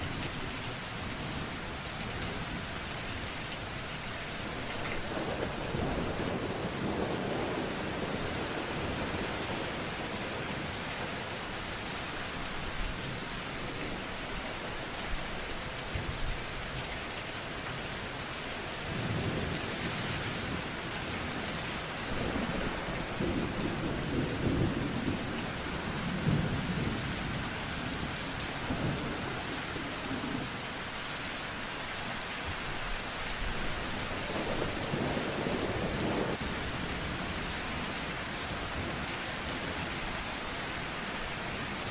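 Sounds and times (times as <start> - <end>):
heavy rain falling: 0.0 - 41.9
thunder rumbling: 22.1 - 30.5.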